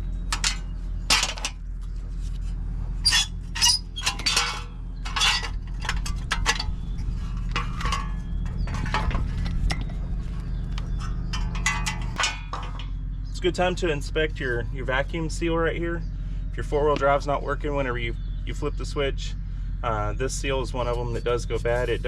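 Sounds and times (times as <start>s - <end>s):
steady low hum: 0.0s - 22.0s
metal tools clinking: 0.3s - 1.6s, 3.0s - 9.9s, 10.9s - 12.9s.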